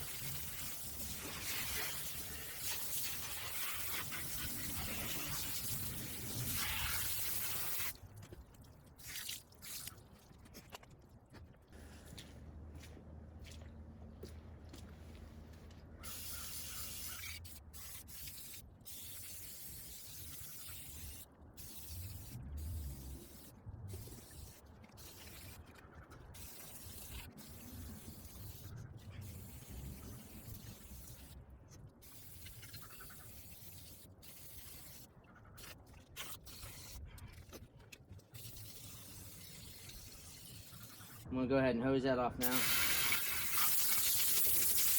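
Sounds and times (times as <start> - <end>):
hiss of liquid being sprayed: 42.4 - 44.9.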